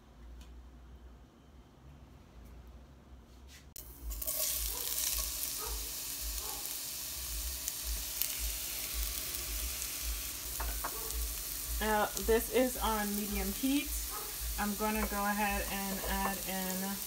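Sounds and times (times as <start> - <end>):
jackfruit sizzling in hot oil: 3.8 - 17.0.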